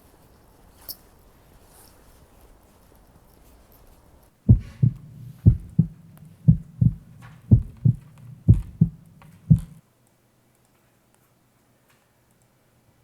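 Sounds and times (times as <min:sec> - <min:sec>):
heartbeat thumps: 0:04.5 - 0:09.8
low hum: 0:04.5 - 0:09.8.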